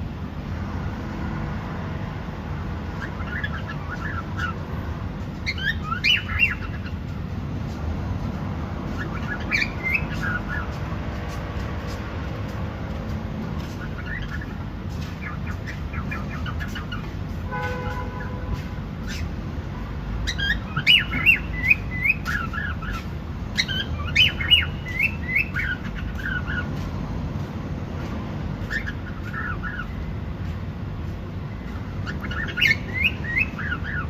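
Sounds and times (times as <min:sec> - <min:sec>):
cockatiel chirping and whistling: 0:05.4 - 0:06.8, 0:09.0 - 0:10.6, 0:20.2 - 0:26.6, 0:28.7 - 0:30.0, 0:32.0 - 0:34.0.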